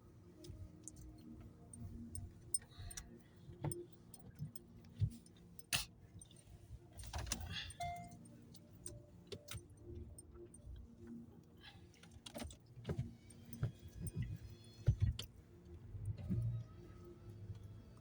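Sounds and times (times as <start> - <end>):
car engine and road rumble: 0.0 - 18.0
light clicks and rattles: 0.4 - 18.0.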